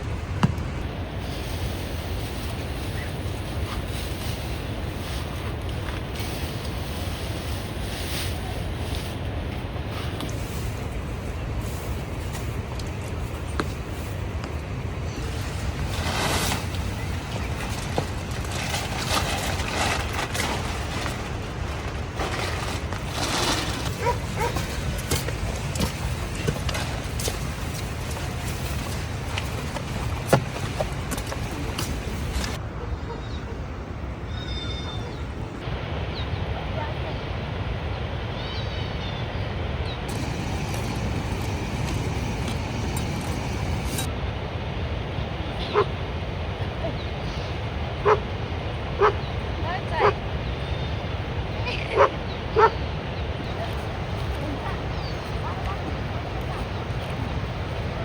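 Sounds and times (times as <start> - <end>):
steady rushing noise: 0.0 - 32.6, 35.4 - 58.0
wind buffeting microphone: 0.0 - 32.6, 35.2 - 58.0
outdoor hiss: 0.6 - 12.6, 38.3 - 46.1.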